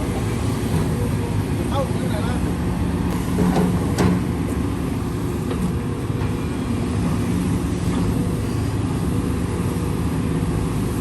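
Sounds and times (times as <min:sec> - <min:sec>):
heavy machine engine running: 0:00.0 - 0:11.0.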